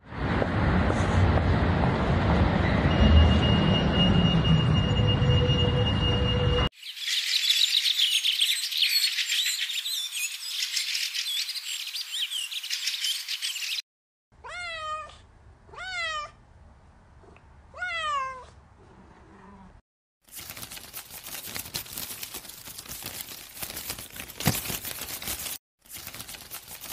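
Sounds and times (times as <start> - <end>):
high chirping and twittering: 6.8 - 13.8
kitten meowing: 14.4 - 16.4, 17.8 - 18.5.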